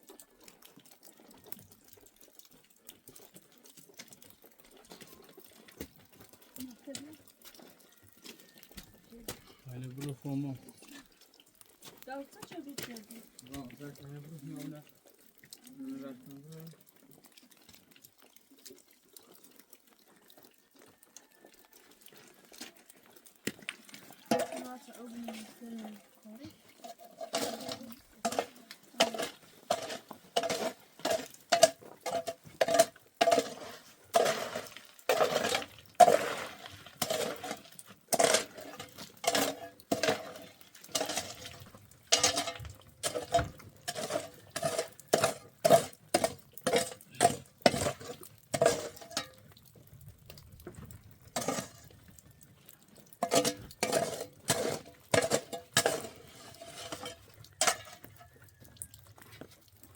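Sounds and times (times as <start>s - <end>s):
metal utensil striking cooking pot: 24.2s - 24.8s, 26.8s - 36.4s, 37.0s - 49.4s, 53.2s - 58.2s.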